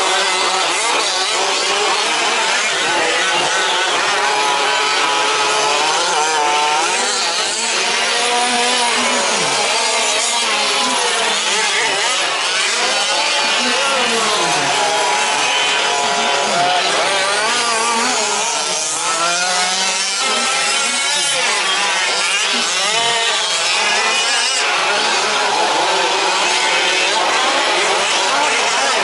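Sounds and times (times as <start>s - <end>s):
small two-stroke engines racing: 0.0s - 29.0s.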